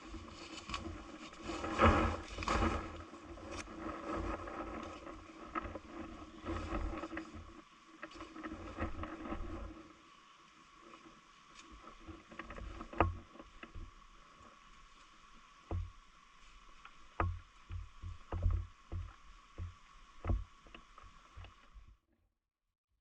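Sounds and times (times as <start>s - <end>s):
steady hiss: 0.0s - 22.0s
soft knocks and clicks: 16.8s - 21.7s.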